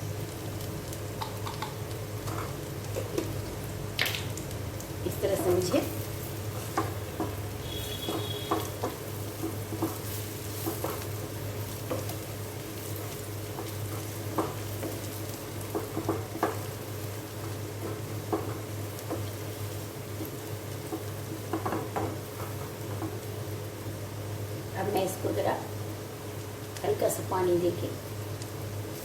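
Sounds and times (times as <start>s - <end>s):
food sizzling in a pan: 0.0s - 29.0s
spatula scraping a pan: 6.5s - 12.2s.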